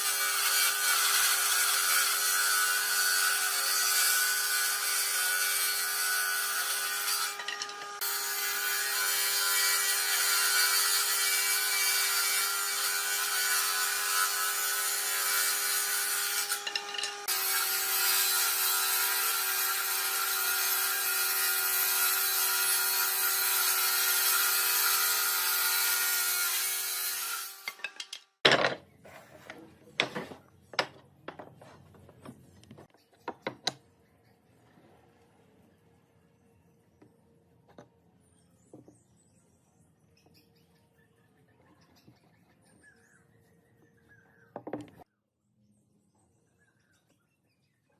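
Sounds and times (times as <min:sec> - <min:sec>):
power tool cutting wood: 0:00.0 - 0:28.0.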